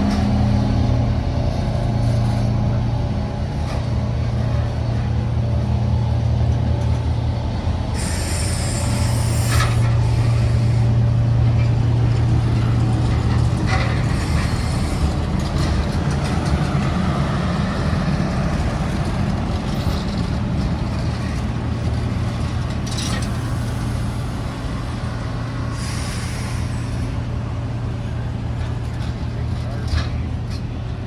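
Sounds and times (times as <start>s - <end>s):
locomotive engine drone: 0.0s - 31.0s
air hiss: 8.0s - 11.0s, 25.8s - 27.1s.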